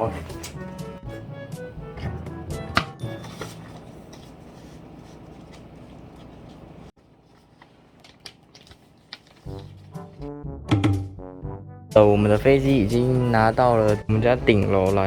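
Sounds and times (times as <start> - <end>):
paper rustling and crinkling: 3.0 - 10.3.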